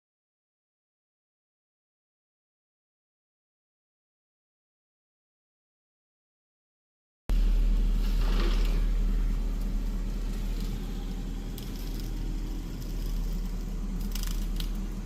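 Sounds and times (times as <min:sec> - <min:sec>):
engine rumbling: 0:07.3 - 0:15.0.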